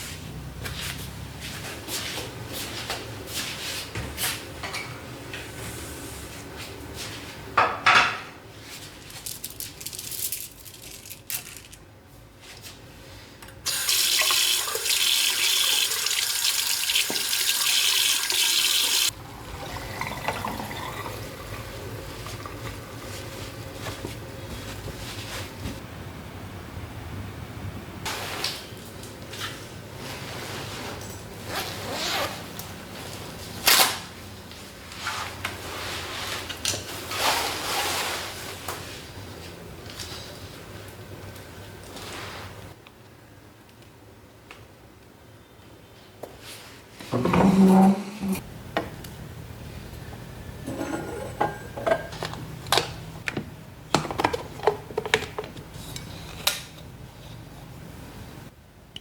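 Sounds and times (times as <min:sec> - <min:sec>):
low room hum: 0:19.1 - 0:59.0
teacups and lids clinking: 0:19.4 - 0:23.8, 0:50.6 - 0:52.8.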